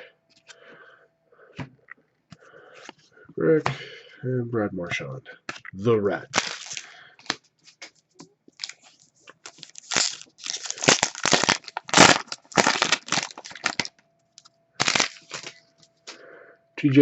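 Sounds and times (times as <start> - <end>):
cards and packaging crinkling: 6.3 - 13.9, 14.8 - 16.2.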